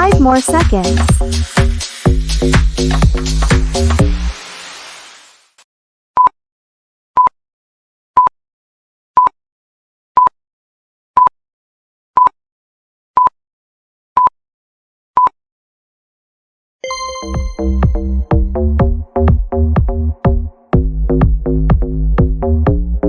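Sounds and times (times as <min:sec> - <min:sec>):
timer beeping: 0:16.8 - 0:18.6.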